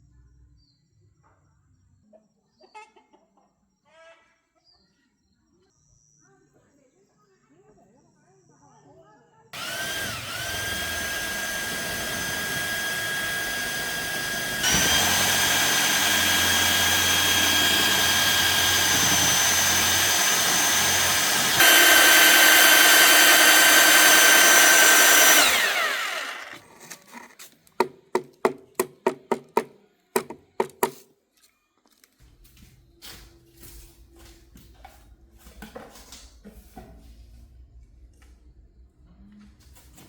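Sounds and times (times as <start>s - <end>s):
power tool motor whining: 9.6s - 26.7s.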